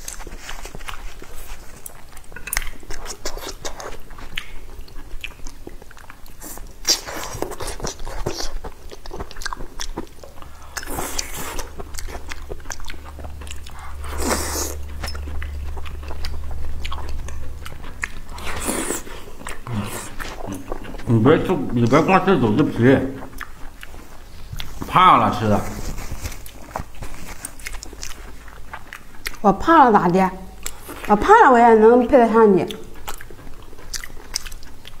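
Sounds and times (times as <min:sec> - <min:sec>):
wet chewing: 0:00.0 - 0:35.0.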